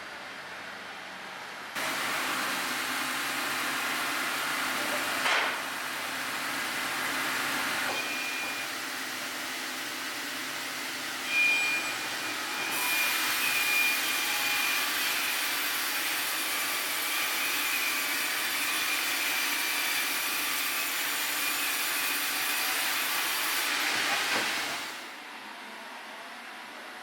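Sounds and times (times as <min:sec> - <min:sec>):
saw cutting through log: 0:11.3 - 0:25.1.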